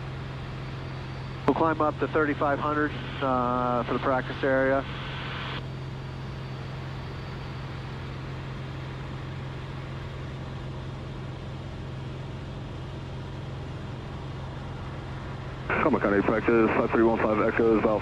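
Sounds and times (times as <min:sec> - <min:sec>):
airplane engine and propeller droning: 0:00.0 - 0:18.0.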